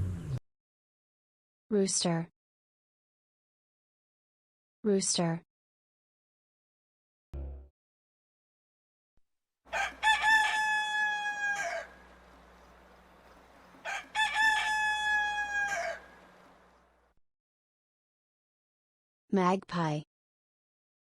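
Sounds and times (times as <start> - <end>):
rooster crowing: 9.7 - 16.7.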